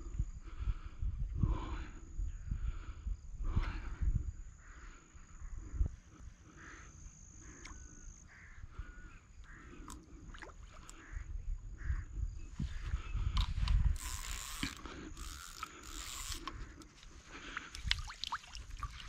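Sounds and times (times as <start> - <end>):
frogs croaking: 1.8 - 19.0.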